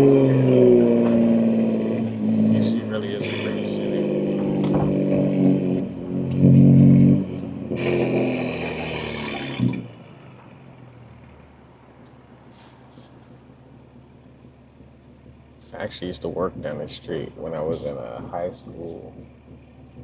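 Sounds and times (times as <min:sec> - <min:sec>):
hissing rush: 0:00.0 - 0:05.9
car engine revving through exhaust: 0:00.0 - 0:20.0
thump: 0:04.4 - 0:05.2.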